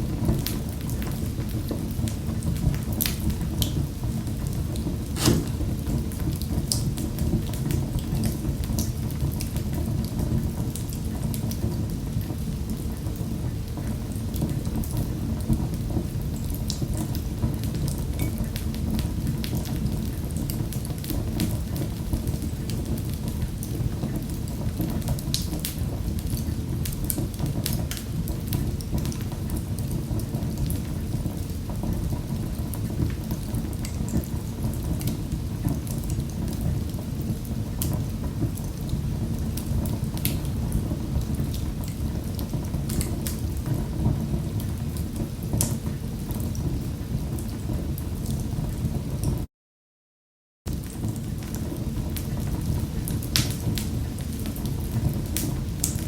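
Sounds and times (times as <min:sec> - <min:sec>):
wood fire crackling: 0:00.1 - 0:15.2, 0:50.7 - 0:56.0.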